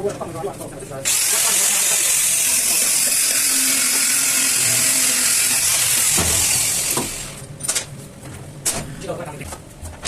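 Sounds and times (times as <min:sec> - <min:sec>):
loud steady hiss: 0:01.1 - 0:03.0.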